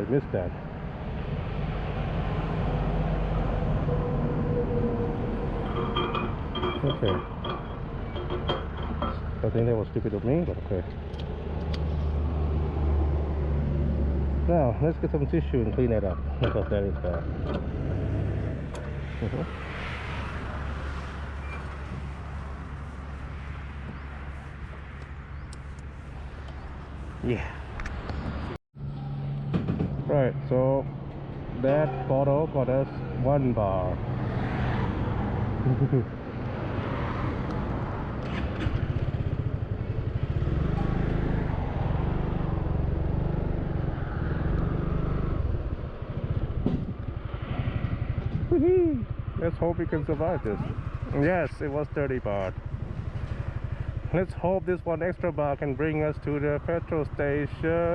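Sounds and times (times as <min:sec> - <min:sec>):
vehicle passing on road: 0:00.0 - 0:57.9
scooter engine running: 0:50.0 - 0:54.9.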